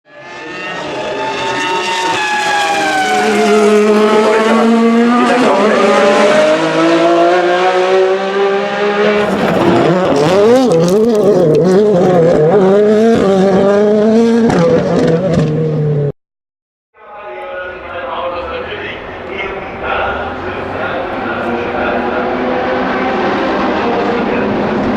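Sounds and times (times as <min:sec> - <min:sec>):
race car engines revving: 0:00.1 - 0:16.1, 0:17.3 - 0:24.9.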